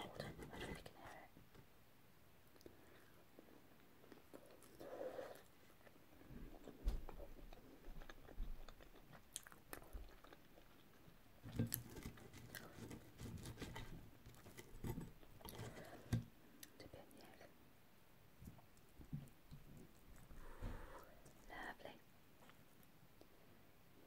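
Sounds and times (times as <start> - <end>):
person chewing food: 2.5 - 16.7.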